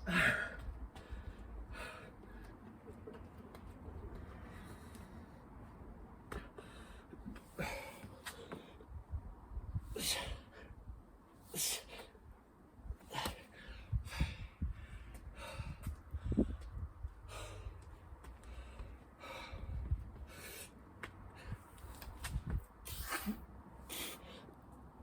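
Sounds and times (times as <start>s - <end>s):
man breathing hard and gasping: 0.0s - 2.5s, 6.3s - 8.8s, 13.0s - 21.6s, 22.9s - 24.6s.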